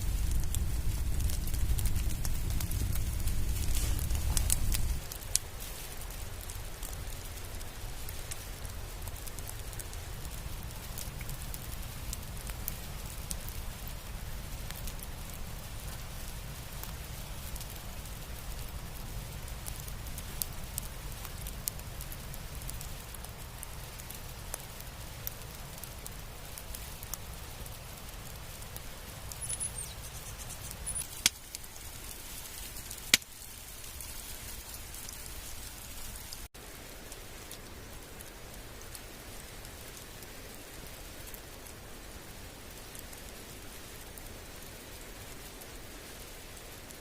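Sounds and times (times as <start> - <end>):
low rumble: 0.0 - 5.4
campfire crackling: 0.0 - 47.0.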